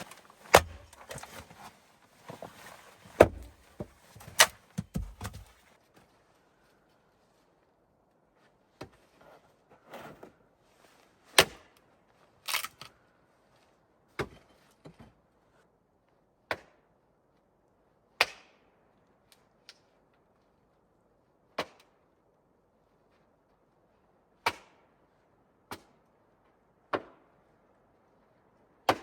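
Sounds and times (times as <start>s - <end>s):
sharp hard knocks: 3.2s - 3.6s, 4.4s - 5.5s.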